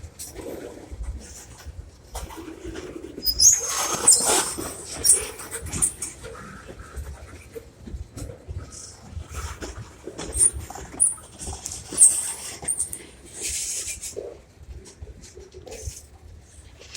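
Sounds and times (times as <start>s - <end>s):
freight cars rolling on track: 0.0s - 16.9s
high-pitched wheel squeal: 3.2s - 6.0s, 10.3s - 14.0s
wheel clanks and clicks: 9.4s - 13.7s.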